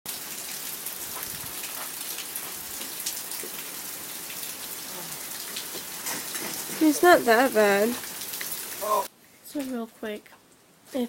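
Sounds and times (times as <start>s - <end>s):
raindrops hitting close by: 0.1s - 11.0s
steady rain hiss: 0.1s - 11.0s.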